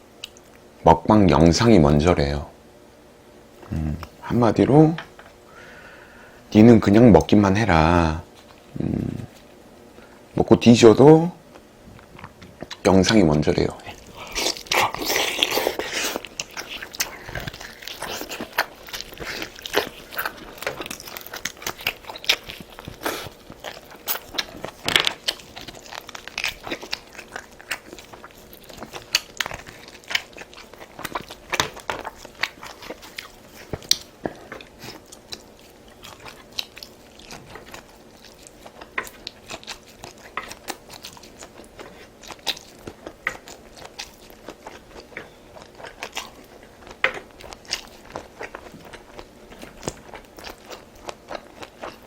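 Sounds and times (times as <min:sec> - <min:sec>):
person chewing and crunching food: 0:06.9 - 0:10.3, 0:11.6 - 0:52.0.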